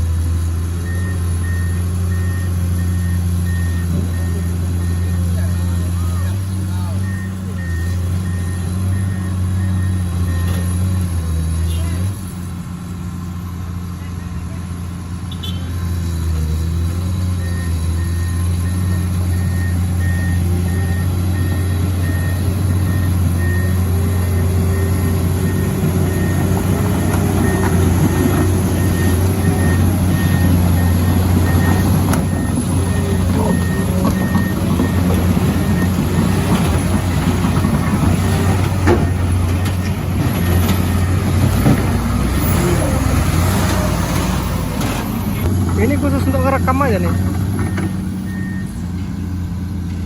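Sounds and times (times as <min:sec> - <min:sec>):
diesel machinery running: 0:00.0 - 0:50.0
reversing alarm beeping: 0:00.8 - 0:10.8, 0:17.4 - 0:37.7, 0:46.0 - 0:50.0.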